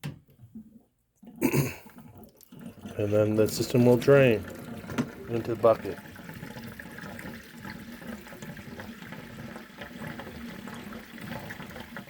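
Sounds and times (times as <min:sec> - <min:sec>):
water draining into a bucket: 0:00.3 - 0:12.0.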